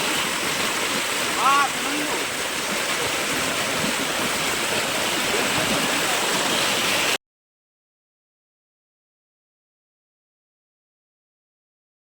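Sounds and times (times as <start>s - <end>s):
flowing rainwater rushing: 0.0s - 7.2s.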